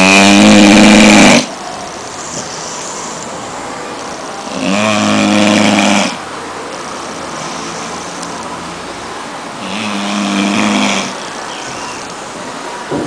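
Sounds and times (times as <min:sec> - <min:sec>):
puppy snoring loudly: 0:00.0 - 0:01.5, 0:04.5 - 0:06.2, 0:09.6 - 0:11.2.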